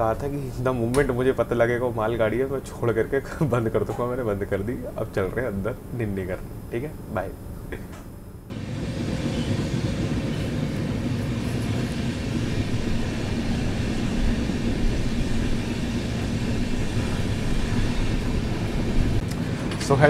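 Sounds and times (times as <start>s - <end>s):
faint steady hum: 0.0s - 20.0s
train wheels on rails: 8.5s - 20.0s.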